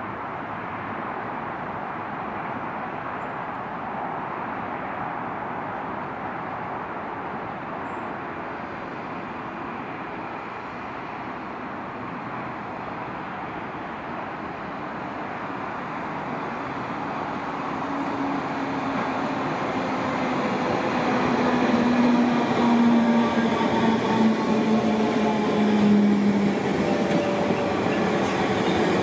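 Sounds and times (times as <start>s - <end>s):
train rumble: 14.4s - 29.0s.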